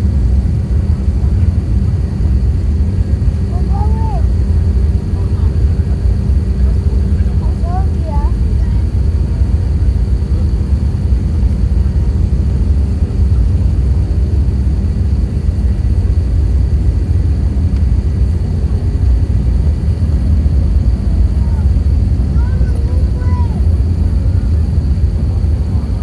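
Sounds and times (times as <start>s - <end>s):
jet engines rumbling in cabin: 0.0s - 26.0s.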